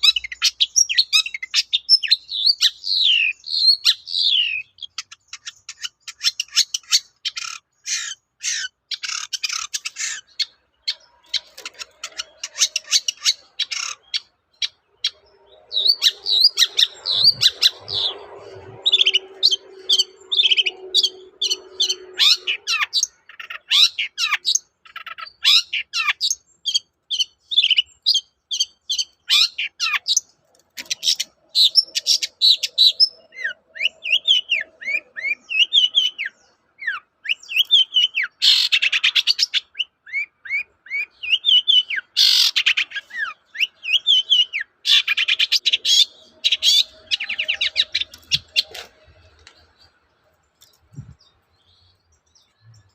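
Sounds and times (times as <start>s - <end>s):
bird singing chirps and whistles: 0.0s - 48.9s
bird harsh rasping bursts: 4.4s - 14.4s.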